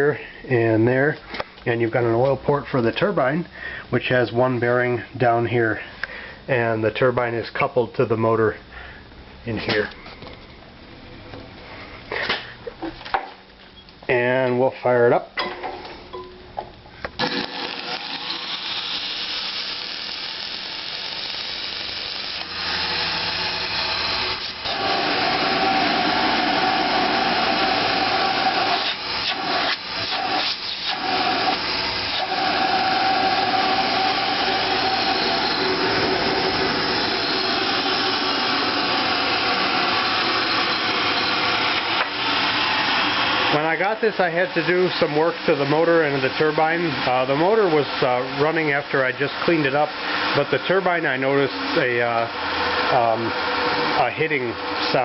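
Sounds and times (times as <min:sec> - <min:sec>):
vacuum motor whining: 0:17.2 - 0:48.0.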